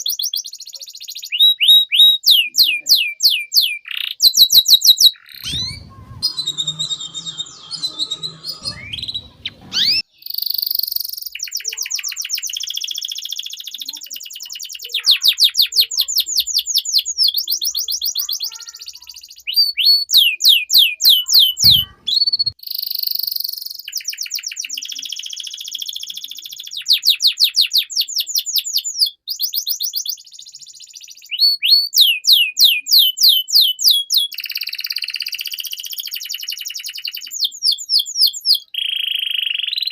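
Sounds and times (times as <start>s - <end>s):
canary singing trills: 0.0s - 39.9s
dull thump: 5.5s - 6.7s.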